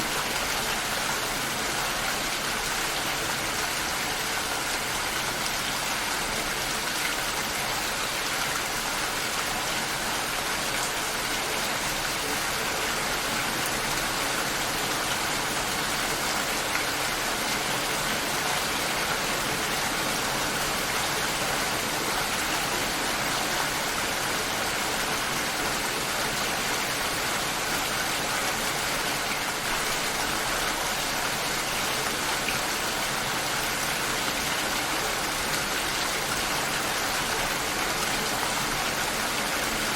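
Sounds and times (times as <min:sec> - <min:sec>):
steady rain shower: 0:00.0 - 0:39.9.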